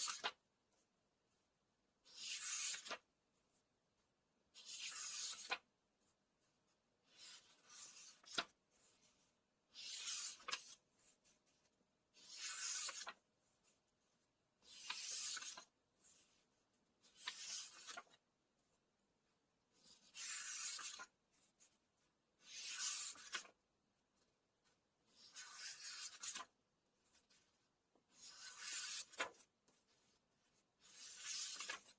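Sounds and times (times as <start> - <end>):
book pages turning: 0.0 - 0.4, 2.1 - 3.1, 4.6 - 5.7, 7.1 - 11.5, 12.2 - 13.8, 14.6 - 18.2, 19.8 - 21.8, 22.4 - 23.6, 25.1 - 31.9.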